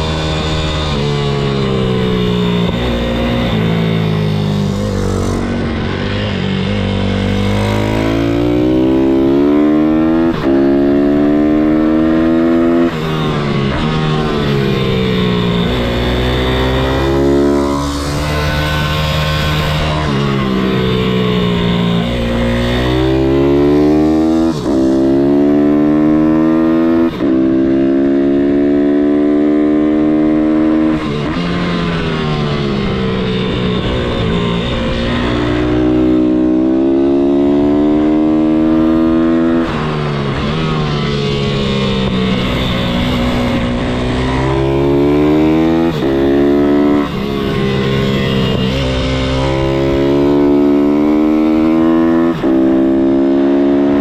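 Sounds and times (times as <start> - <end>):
motorbike engine accelerating: 0.0 - 54.0.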